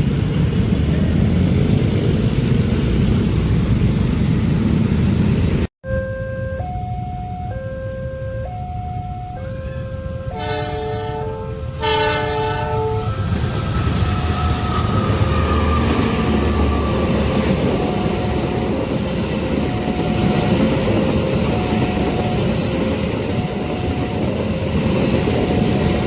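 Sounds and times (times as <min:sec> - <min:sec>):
train wheels rumbling on rail: 0:00.0 - 0:05.7, 0:10.0 - 0:26.0
level crossing warning alarm: 0:05.8 - 0:26.0
train horn blasts: 0:05.9 - 0:13.3.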